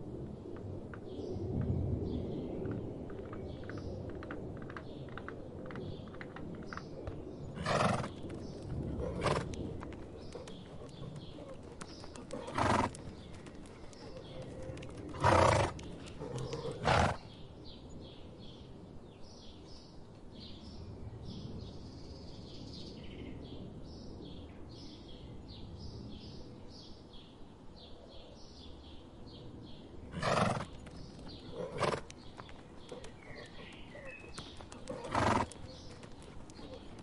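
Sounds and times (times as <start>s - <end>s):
low outdoor rumble: 0.0s - 17.3s
horse snorting: 7.6s - 8.2s, 8.9s - 17.2s, 30.1s - 37.0s.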